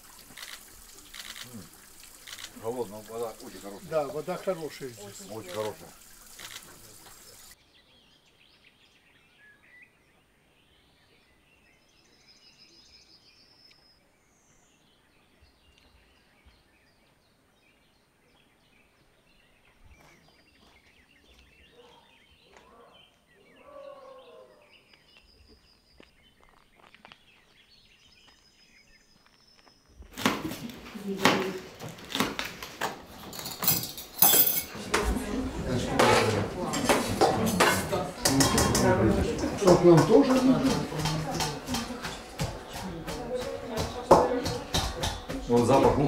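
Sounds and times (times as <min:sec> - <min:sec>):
birds chirping faintly: 0:00.0 - 0:46.0.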